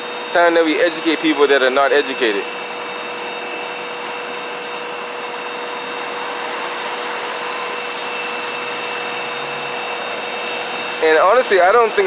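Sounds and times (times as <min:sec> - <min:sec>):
steady whooshing air: 0:05.4 - 0:12.0.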